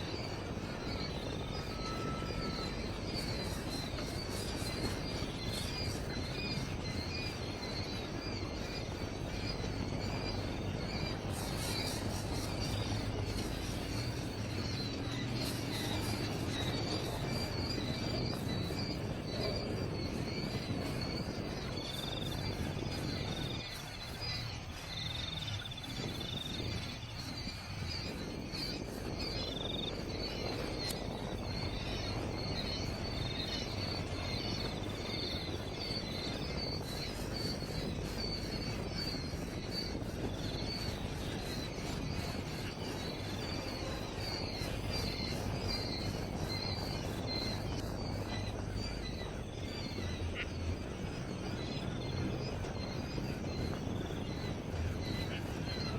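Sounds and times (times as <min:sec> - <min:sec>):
birds chirping: 0:00.0 - 0:55.9
low background rumble: 0:00.0 - 0:55.9.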